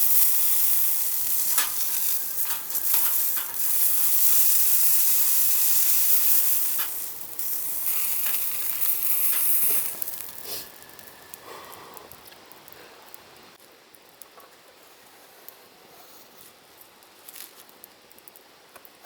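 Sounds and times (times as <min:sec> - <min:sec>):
food sizzling in a hot pan: 0:00.0 - 0:11.4
cooking utensil clicks: 0:01.3 - 0:10.4.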